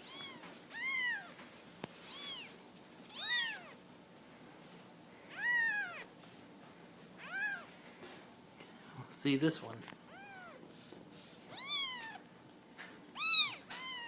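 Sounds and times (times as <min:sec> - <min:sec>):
kittens mewing: 0:05.3 - 0:06.1, 0:07.2 - 0:07.7, 0:10.1 - 0:10.6, 0:11.5 - 0:12.2, 0:13.2 - 0:14.0.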